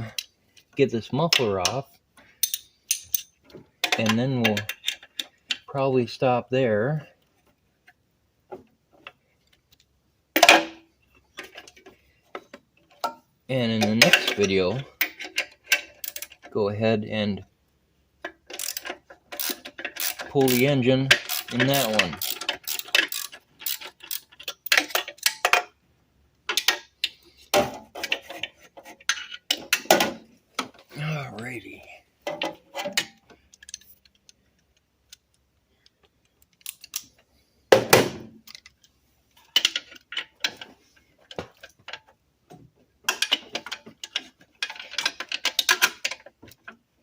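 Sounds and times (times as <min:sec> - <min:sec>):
metallic clicks of hand tools: 0:02.4 - 0:05.6, 0:13.8 - 0:16.5, 0:18.2 - 0:25.7, 0:32.3 - 0:37.2.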